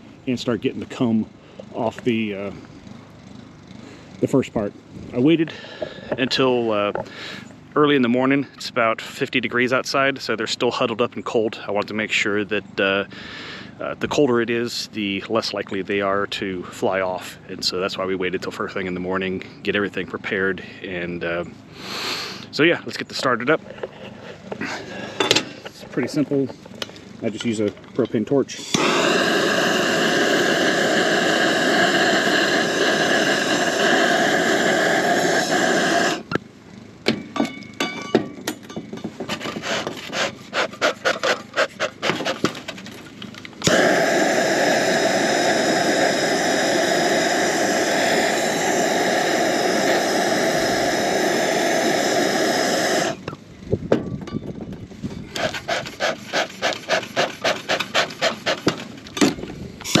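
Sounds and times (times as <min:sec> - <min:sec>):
propane torch hissing: 0:05.1 - 0:07.6, 0:21.7 - 0:27.6, 0:28.5 - 0:36.4, 0:39.3 - 0:53.4, 0:55.2 - 1:00.0
quick rustling scraping strokes: 0:39.3 - 0:42.9, 0:55.0 - 0:58.9.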